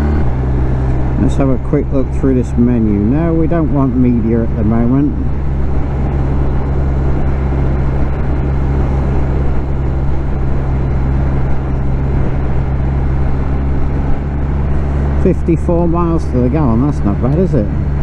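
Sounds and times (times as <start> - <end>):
motorcycle engine cruising: 0.0 - 18.0
wind rush: 2.5 - 15.2.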